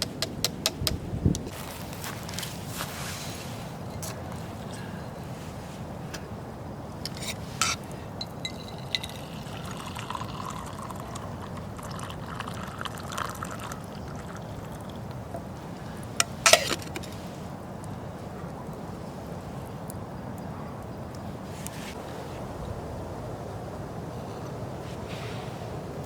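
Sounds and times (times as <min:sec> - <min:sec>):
water being poured: 0:07.1 - 0:15.5.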